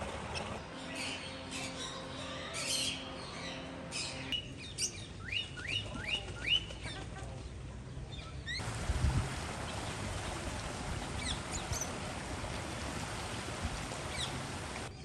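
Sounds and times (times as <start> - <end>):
birds chirping: 8.1 - 15.0.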